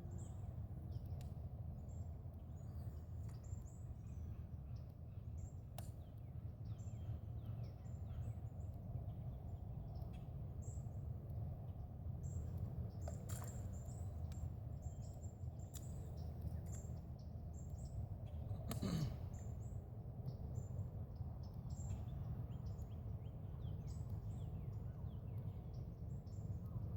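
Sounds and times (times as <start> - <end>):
small birds chirping: 0.0 - 26.9.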